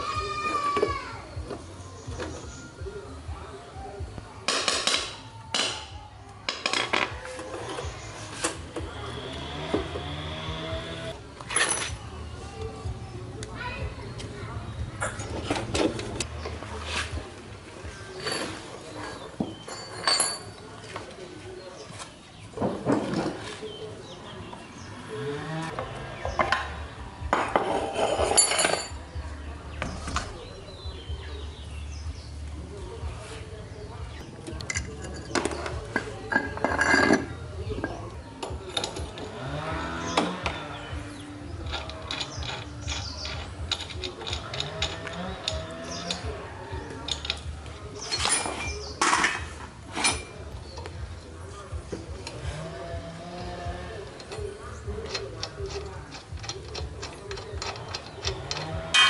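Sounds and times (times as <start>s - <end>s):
metal clinking and clattering: 19.6s - 20.6s, 27.3s - 29.0s, 34.6s - 39.3s, 41.6s - 46.3s, 47.0s - 50.5s, 54.2s - 59.0s
metal clanking: 34.5s - 51.0s, 54.1s - 59.0s.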